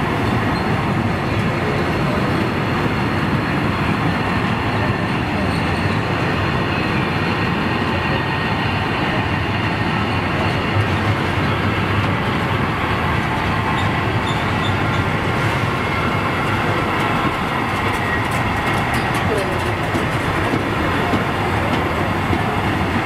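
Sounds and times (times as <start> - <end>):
train wheels rumbling on rail: 0.0 - 23.0
wheels squealing: 13.3 - 23.0.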